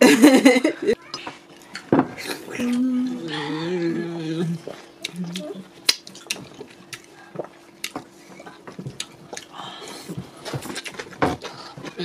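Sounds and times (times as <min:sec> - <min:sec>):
wet mouth clicks and smacks chewing: 0:05.0 - 0:09.6.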